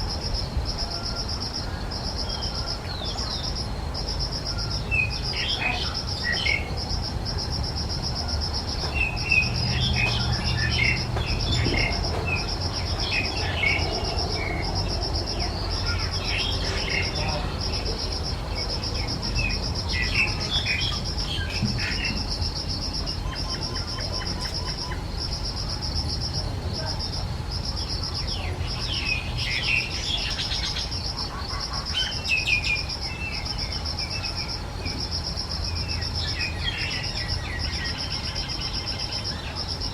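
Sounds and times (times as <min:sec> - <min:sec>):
insect trilling: 0:00.0 - 0:39.9
bird chirps: 0:08.8 - 0:25.4.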